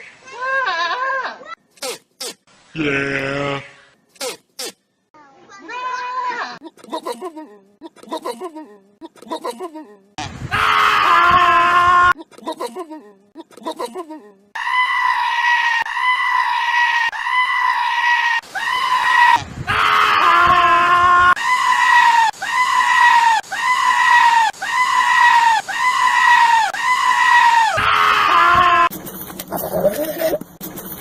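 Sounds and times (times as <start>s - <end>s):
goat screaming: 0.2s - 1.6s, 5.6s - 6.6s, 10.5s - 12.2s, 14.6s - 28.9s, 29.5s - 30.4s.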